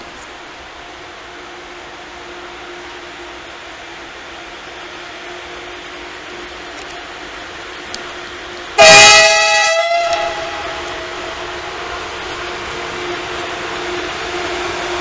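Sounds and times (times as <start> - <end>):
train horn blast: 8.8 - 15.0.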